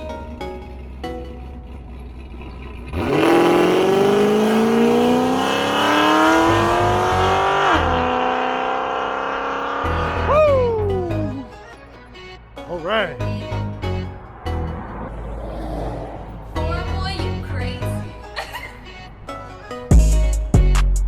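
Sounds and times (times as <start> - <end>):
car engine accelerating: 0.0 - 19.9.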